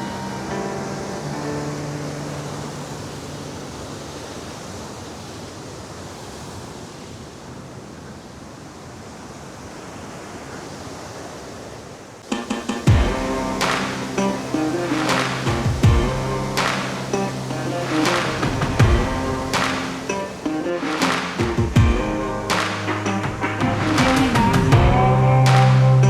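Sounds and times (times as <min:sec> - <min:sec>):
background music: 0:00.0 - 0:03.9, 0:12.2 - 0:26.0
waterfall rushing: 0:00.0 - 0:06.6, 0:12.2 - 0:26.0.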